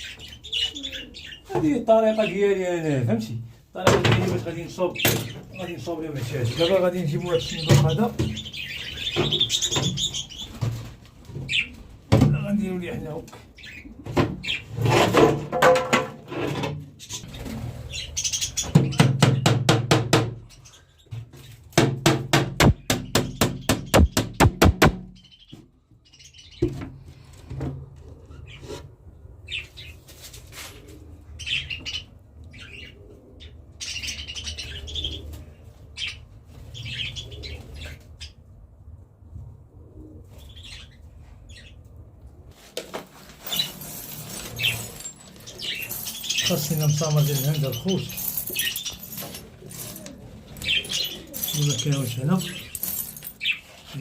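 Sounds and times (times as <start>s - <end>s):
small birds chirping: 0.0s - 2.6s, 4.4s - 11.8s, 12.4s - 14.8s, 17.0s - 19.6s, 22.6s - 26.8s, 31.4s - 38.4s, 43.5s - 54.0s.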